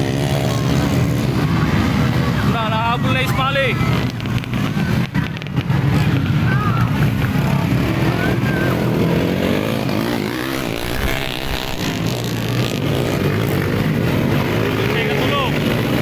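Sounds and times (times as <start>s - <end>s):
motorcycle engines revving: 0.0s - 16.0s
steady low drone: 10.4s - 12.8s.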